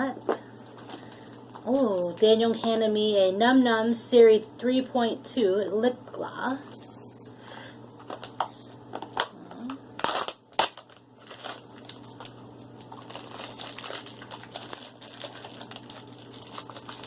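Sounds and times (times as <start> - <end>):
plastic crinkling and clicking: 8.0 - 17.0
plastic packaging snapping: 10.0 - 17.0.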